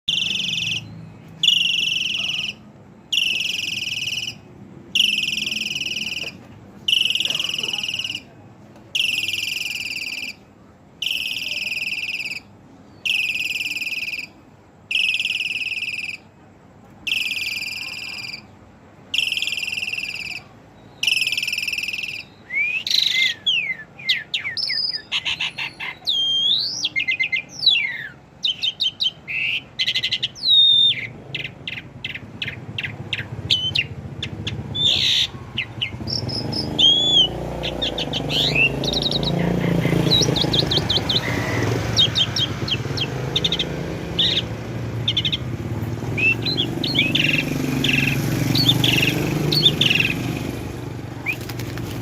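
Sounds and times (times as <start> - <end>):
starling calling and singing: 0.1 - 8.3, 9.0 - 10.4, 11.0 - 16.3, 17.1 - 52.0.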